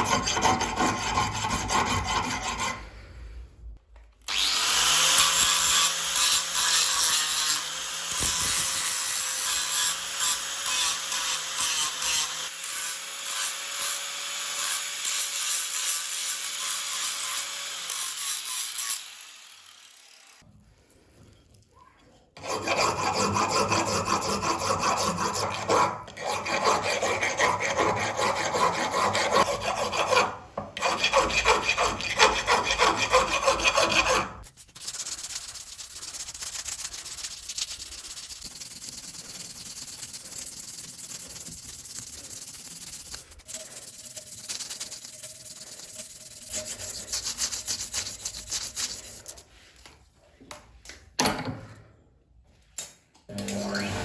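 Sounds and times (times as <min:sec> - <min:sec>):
abrasive rubbing on metal blade: 0:22.5 - 0:49.6.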